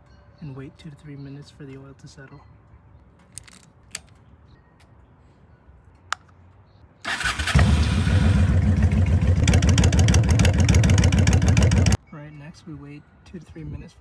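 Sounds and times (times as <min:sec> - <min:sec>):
electric starter cranking: 0:07.1 - 0:12.0
motorcycle engine idling: 0:07.1 - 0:12.0.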